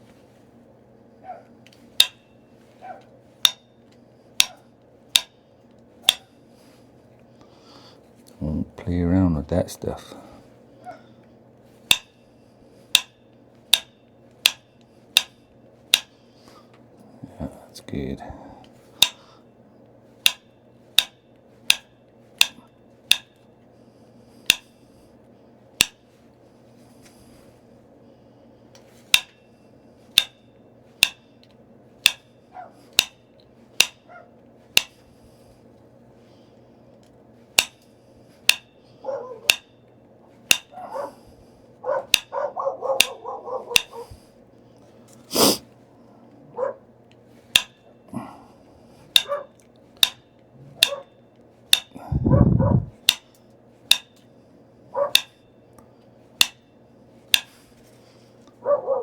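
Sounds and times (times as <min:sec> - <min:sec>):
fan humming: 0:00.0 - 0:59.0
stone striking clicks: 0:02.0 - 0:02.2, 0:04.4 - 0:04.6, 0:21.0 - 0:23.3, 0:47.5 - 0:47.8, 0:49.1 - 0:49.3, 0:50.0 - 0:50.2.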